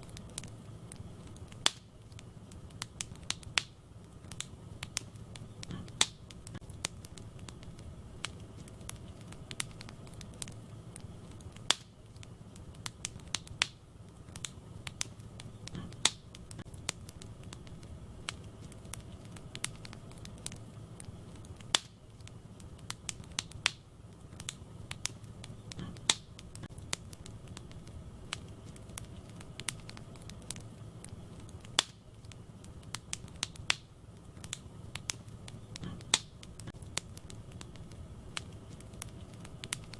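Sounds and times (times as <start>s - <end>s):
fire popping: 0.0s - 39.9s
steady low rumble: 0.0s - 39.9s
wood fire crackling: 0.0s - 39.9s.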